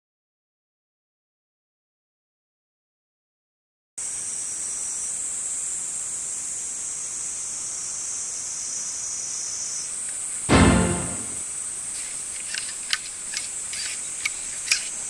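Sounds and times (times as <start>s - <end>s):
cicadas buzzing: 4.0s - 10.4s, 11.5s - 15.0s.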